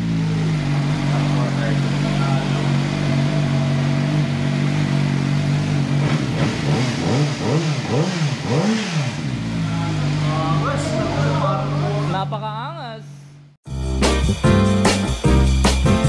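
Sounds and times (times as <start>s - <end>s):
motorcycle engine idling and revving: 0.0s - 12.6s.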